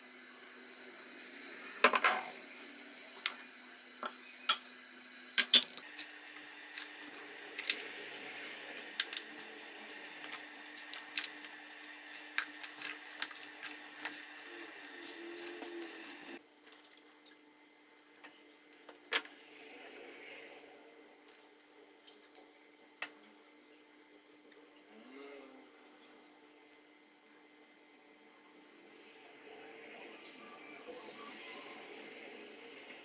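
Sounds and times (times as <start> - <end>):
steady hiss: 5.6 - 16.4.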